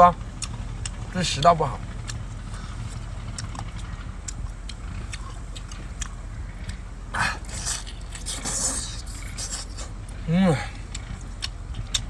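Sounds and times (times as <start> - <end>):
low hum: 0.0 - 12.0
person chewing: 0.3 - 1.0, 1.8 - 12.0.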